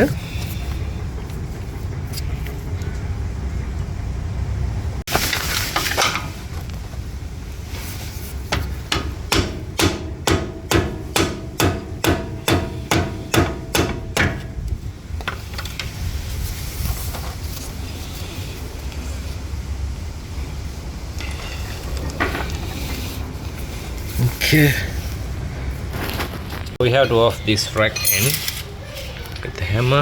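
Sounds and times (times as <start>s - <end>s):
sharp metallic knocks: 8.5s - 14.6s.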